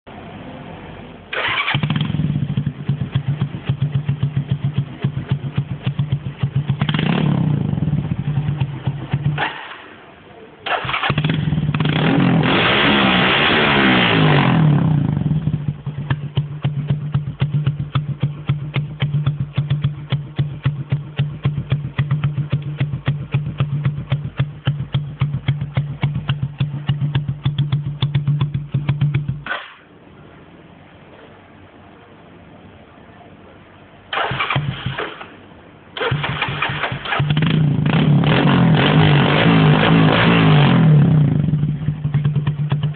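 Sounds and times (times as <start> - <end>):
vehicle engine revving and idling: 1.3 - 9.8, 10.8 - 29.5, 36.0 - 42.9.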